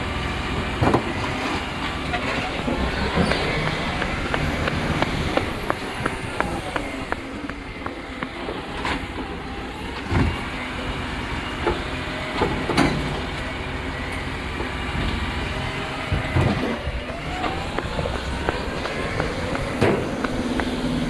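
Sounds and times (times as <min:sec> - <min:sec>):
garbage truck engine running: 0:00.0 - 0:21.0
clunks and knocks: 0:00.8 - 0:09.4, 0:11.6 - 0:13.4, 0:16.1 - 0:21.0.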